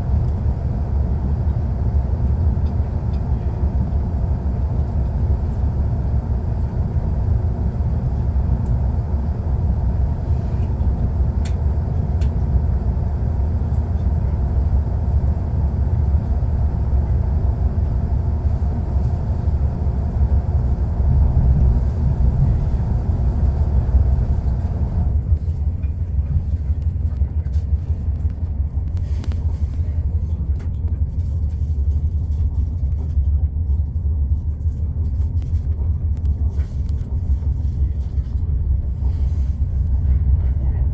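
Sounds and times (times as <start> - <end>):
train rushing noise: 0.0 - 31.3
train rumbling: 0.0 - 40.9.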